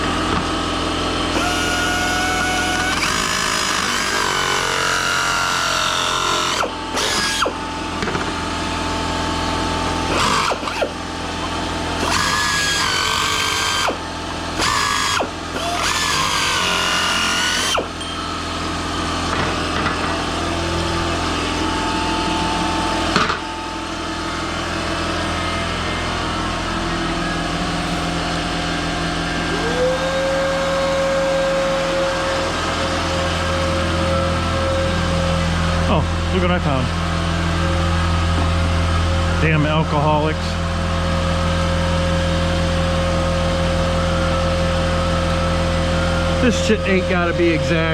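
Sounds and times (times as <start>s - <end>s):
power tool cutting metal sheet: 0.0s - 18.0s
steady tone: 18.0s - 36.6s.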